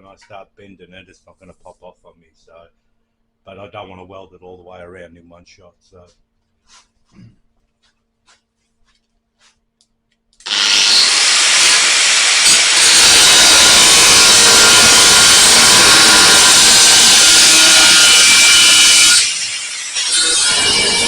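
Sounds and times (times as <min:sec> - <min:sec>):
angle grinder cutting sheet steel: 0:10.4 - 0:21.0.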